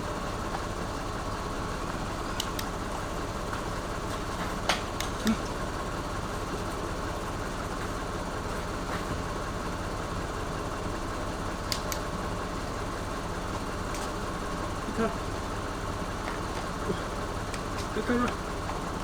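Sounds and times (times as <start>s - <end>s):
faint steady whine: 0.0s - 19.0s
vehicle engine and road noise: 0.0s - 19.0s
small clicks: 2.2s - 2.8s, 11.6s - 12.1s.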